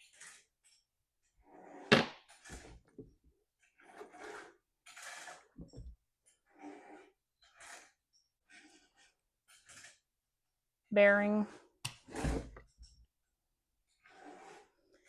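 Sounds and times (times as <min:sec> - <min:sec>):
short scrapes and rustles: 0:03.6 - 0:10.1, 0:13.9 - 0:15.0.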